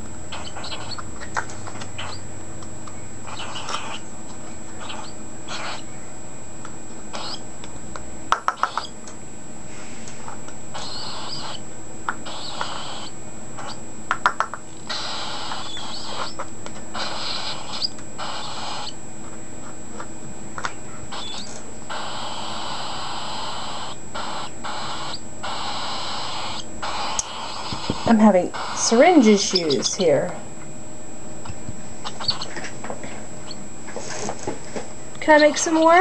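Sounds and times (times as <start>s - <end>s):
bird chick raspy begging call: 10.8s - 11.6s, 21.1s - 30.2s, 32.0s - 32.5s.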